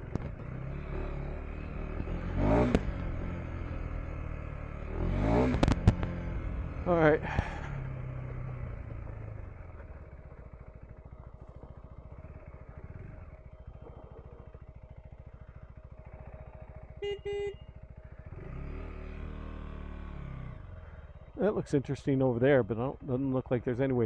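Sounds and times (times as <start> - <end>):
motorcycle engine running: 0.0 - 24.0
motorcycle horn beeps: 16.9 - 17.8.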